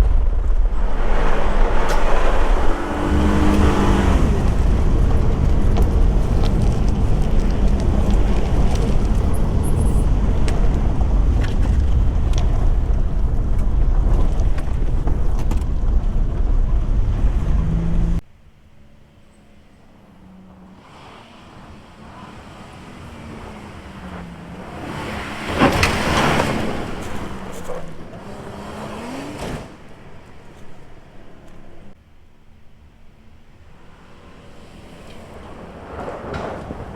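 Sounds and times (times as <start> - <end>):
engine revving past: 0.0 - 12.9, 20.2 - 31.9
off-road truck rumbling: 0.0 - 36.9.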